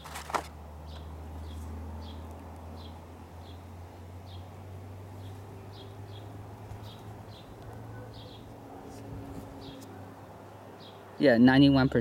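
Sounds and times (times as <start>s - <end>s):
small bird chirping: 5.2s - 10.0s.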